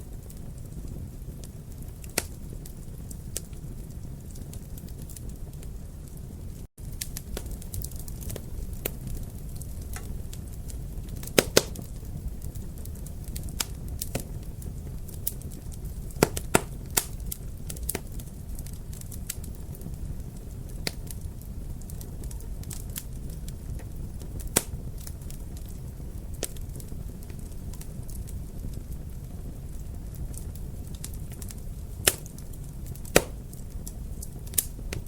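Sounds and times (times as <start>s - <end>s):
wood fire crackling: 0.0s - 35.0s
sharp pops and snaps: 11.1s - 11.9s, 15.3s - 18.2s, 24.4s - 24.8s, 32.0s - 35.0s.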